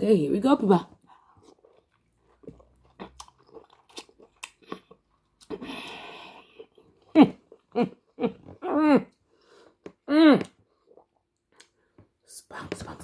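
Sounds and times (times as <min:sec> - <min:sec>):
wet chewing and smacking: 0:00.9 - 0:12.2.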